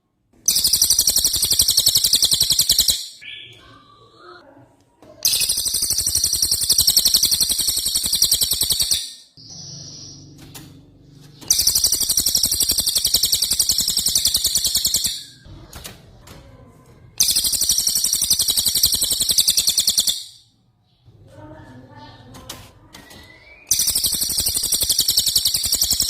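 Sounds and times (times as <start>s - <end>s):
songbird rolling trill: 5.3s - 10.3s, 11.5s - 15.4s.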